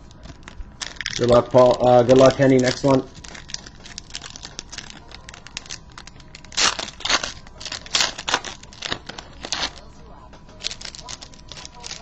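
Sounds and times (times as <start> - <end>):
wrapper tearing and crinkling: 0.0 - 9.9, 10.5 - 12.0.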